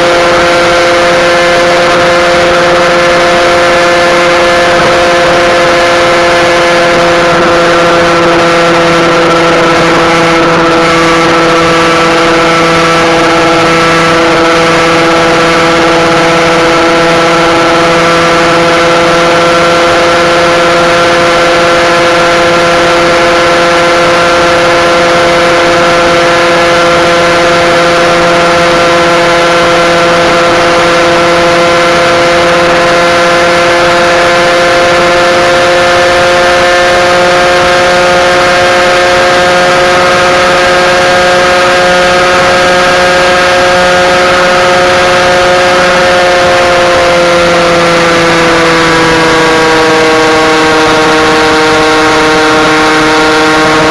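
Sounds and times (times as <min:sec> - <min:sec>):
motorbike engine at high revs: 0:00.0 - 0:53.9.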